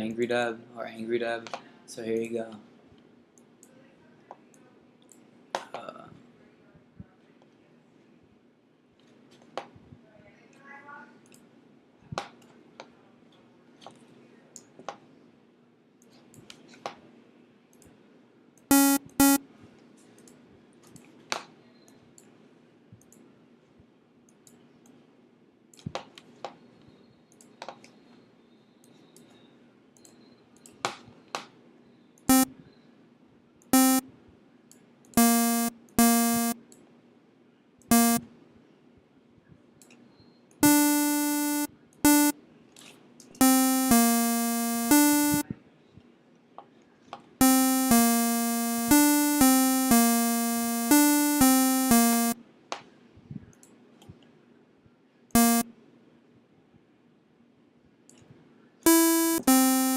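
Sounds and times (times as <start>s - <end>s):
buzzy synthesizer notes: 18.7s - 19.4s, 33.8s - 34.0s, 35.2s - 36.6s, 37.9s - 38.2s, 40.6s - 42.3s, 43.4s - 45.4s, 47.4s - 52.4s, 55.4s - 55.6s, 58.9s - 59.9s.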